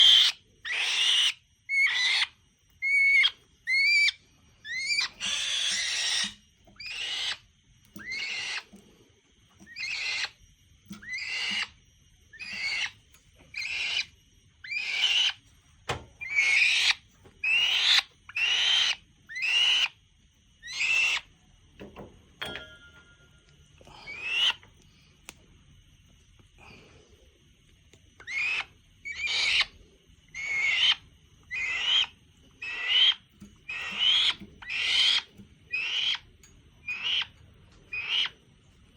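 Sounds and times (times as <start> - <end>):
falcon screeching: 0.0 - 7.4, 8.0 - 8.7, 9.7 - 10.3, 11.0 - 11.7, 12.4 - 13.0, 13.6 - 15.4, 16.2 - 19.9, 24.0 - 24.6, 28.2 - 29.7, 30.4 - 36.2, 36.8 - 37.3, 37.9 - 38.3.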